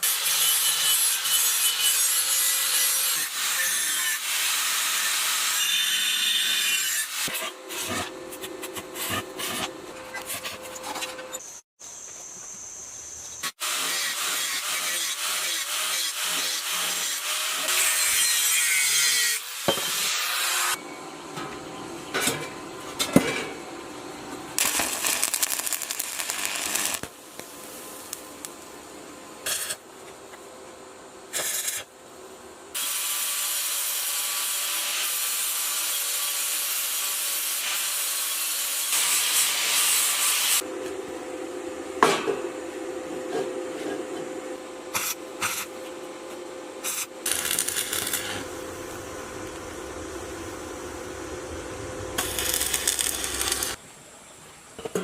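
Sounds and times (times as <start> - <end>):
steady hiss: 24.6 - 33.6, 46.8 - 54.7.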